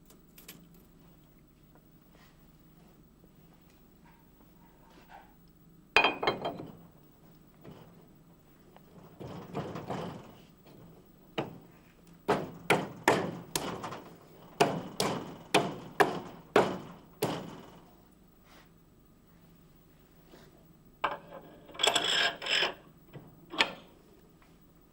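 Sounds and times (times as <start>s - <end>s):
workshop handling noise: 8.9s - 17.7s.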